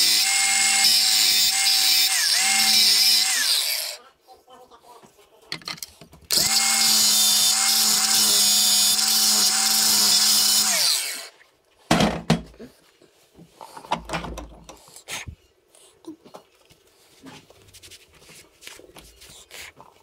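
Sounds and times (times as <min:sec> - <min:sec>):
power tool motor whining: 0:06.3 - 0:11.3.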